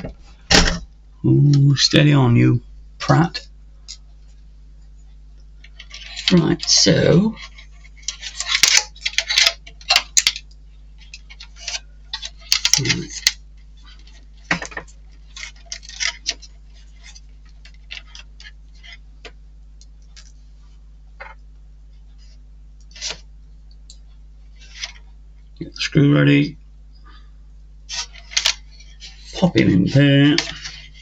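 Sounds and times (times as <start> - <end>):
low electrical hum: 0.0 - 31.0
small plastic parts clicking: 7.5 - 13.4.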